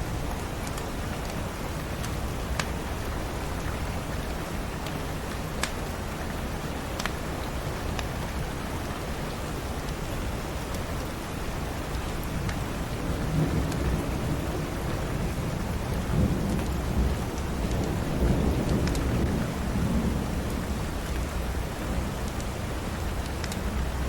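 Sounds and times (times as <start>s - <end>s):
faint fire crackles: 0.0s - 24.0s
heavy rain: 0.0s - 24.0s
rolling thunder rumble: 12.9s - 22.2s.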